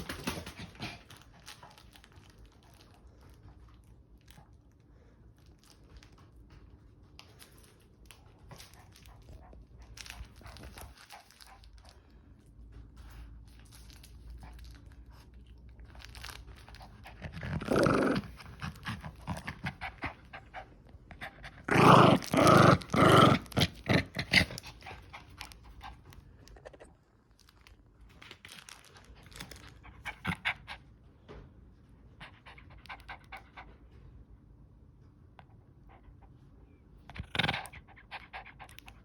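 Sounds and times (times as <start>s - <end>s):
puppy panting and growling: 0.0s - 3.8s, 7.2s - 27.1s, 29.2s - 31.0s, 32.1s - 34.0s, 35.4s - 39.0s.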